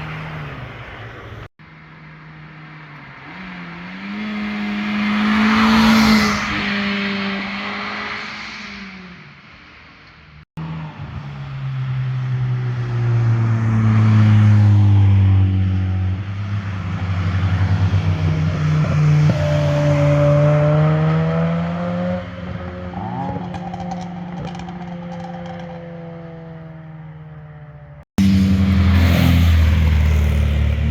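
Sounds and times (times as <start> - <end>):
car accelerating past: 2.7 - 9.4, 11.6 - 26.7, 28.2 - 30.9.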